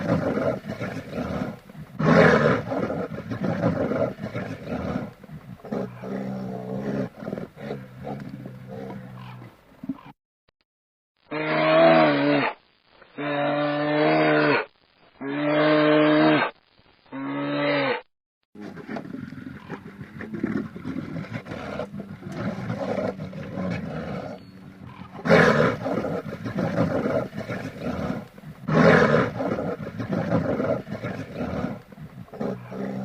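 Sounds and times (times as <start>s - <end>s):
rough noisy animal calls: 0.0s - 10.1s, 17.1s - 33.0s
long pitched animal calls: 11.3s - 12.6s, 21.4s - 29.6s.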